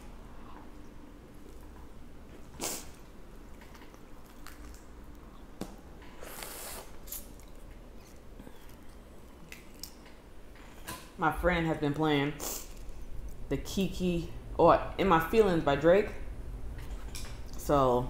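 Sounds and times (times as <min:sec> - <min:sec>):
wet chewing and squishing: 0:03.6 - 0:05.6.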